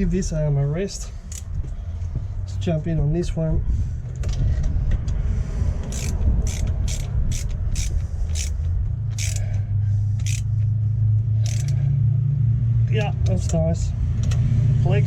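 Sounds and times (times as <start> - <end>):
steady low hum: 0.3 - 13.2
socket ratchet clicking: 1.3 - 1.5, 5.9 - 9.6, 10.2 - 10.5, 11.4 - 11.8.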